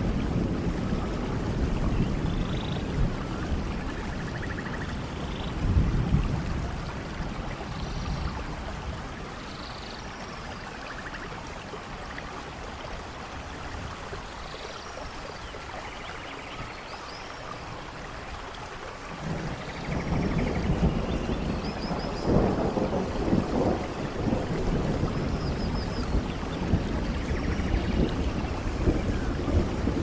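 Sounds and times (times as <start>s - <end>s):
thunder rumble: 0.0s - 9.4s, 19.1s - 30.0s
rain: 0.0s - 30.0s.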